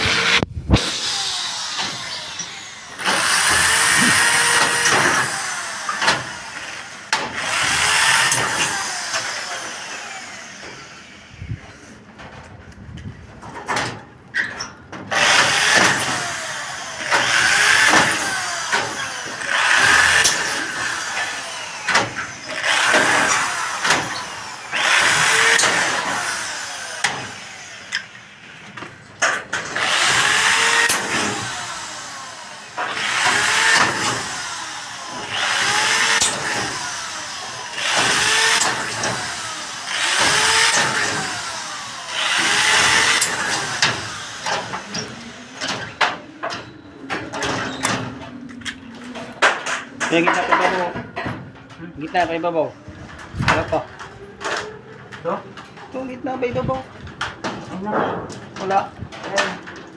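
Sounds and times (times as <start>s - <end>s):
power tool motor bursts: 0.0s - 11.4s, 15.1s - 28.4s, 29.3s - 45.9s.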